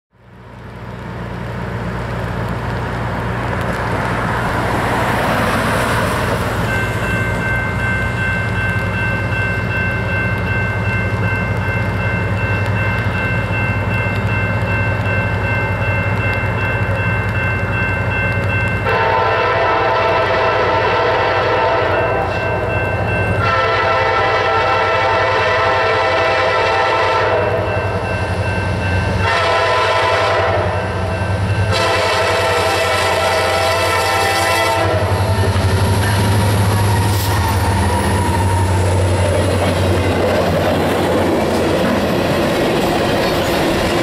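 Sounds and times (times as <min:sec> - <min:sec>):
diesel locomotive engine drone: 0:00.1 - 0:44.0
locomotive air horn: 0:18.8 - 0:22.6, 0:23.4 - 0:27.8, 0:29.2 - 0:31.1, 0:31.7 - 0:35.5
high-pitched squeal: 0:35.0 - 0:40.4.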